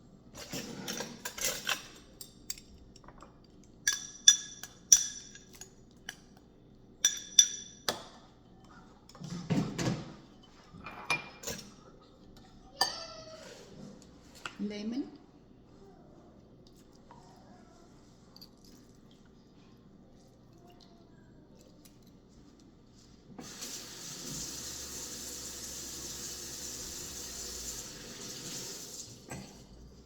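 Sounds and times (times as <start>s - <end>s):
kitchen tap running: 23.4s - 29.8s.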